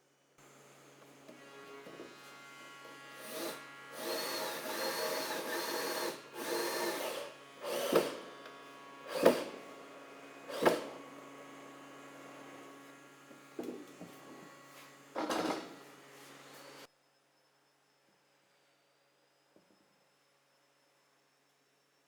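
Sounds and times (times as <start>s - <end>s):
power tool running: 0.4s - 16.9s.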